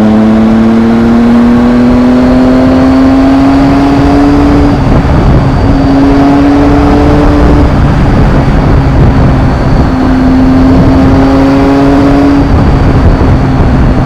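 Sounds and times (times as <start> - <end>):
motorcycle engine under throttle: 0.0 - 14.0
wind rush on microphone: 0.0 - 14.0.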